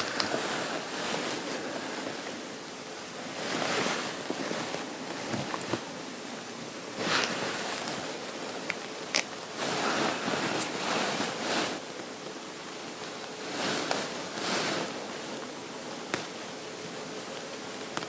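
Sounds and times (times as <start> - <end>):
fabric rustling: 0.0 - 6.0, 7.0 - 8.6, 9.6 - 11.9, 13.4 - 15.4.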